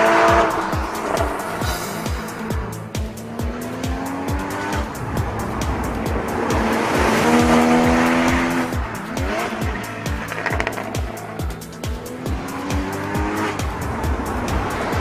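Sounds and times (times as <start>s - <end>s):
car engine revving hard: 0.0s - 1.6s, 2.3s - 11.4s, 12.0s - 15.0s
background music with steady beat: 0.0s - 15.0s.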